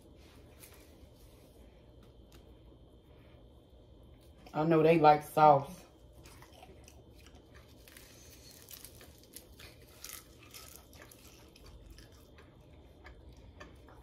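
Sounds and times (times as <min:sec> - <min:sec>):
person chewing crisp food: 0:06.0 - 0:14.0.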